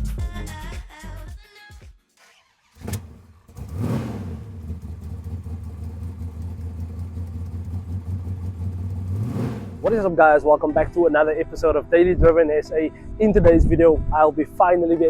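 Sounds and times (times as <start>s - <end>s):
car engine revving and idling: 2.7s - 10.1s.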